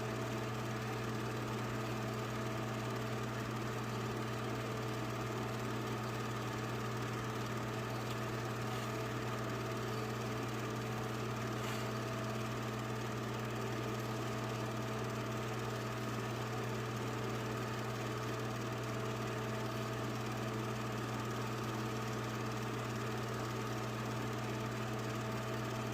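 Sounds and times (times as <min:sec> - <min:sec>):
low machine hum: 0:00.0 - 0:25.9.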